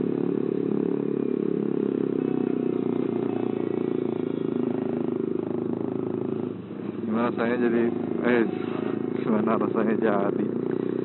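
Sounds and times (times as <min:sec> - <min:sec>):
motorcycle engine running steadily: 0:00.0 - 0:11.0.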